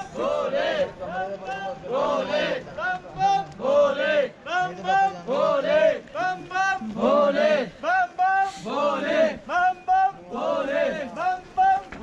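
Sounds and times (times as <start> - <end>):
men chanting in rhythm: 3.2 - 11.4.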